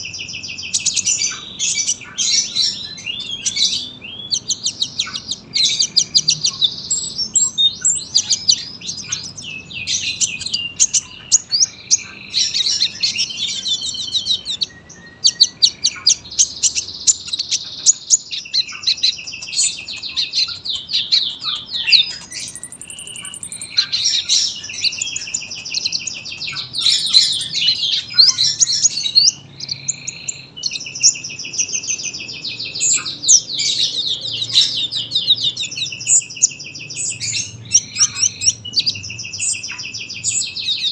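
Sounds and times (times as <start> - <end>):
sunbird high-pitched chattering trills: 0.0 - 40.9.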